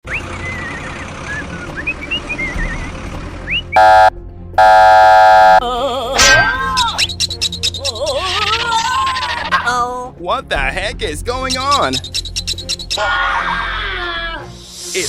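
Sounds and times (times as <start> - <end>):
vehicle horn honking: 3.8 - 5.6
bird-like chirps: 11.7 - 13.0.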